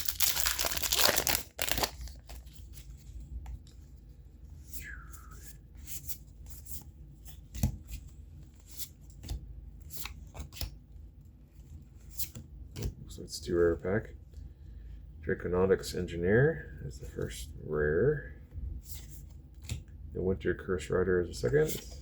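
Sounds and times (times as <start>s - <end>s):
wrapper being torn open: 0.0s - 2.4s
cards being flipped through: 0.0s - 3.8s, 5.4s - 10.8s.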